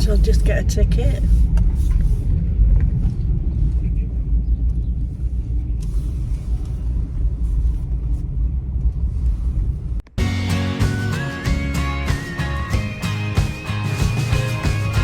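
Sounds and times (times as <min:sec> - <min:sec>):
car engine rumbling inside cabin: 0:00.0 - 0:10.2.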